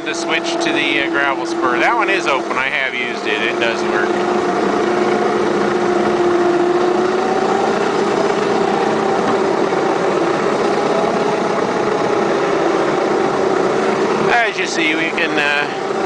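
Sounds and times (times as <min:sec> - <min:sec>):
locomotive running on track: 0:00.0 - 0:16.0
model locomotive motor whining: 0:00.0 - 0:16.0.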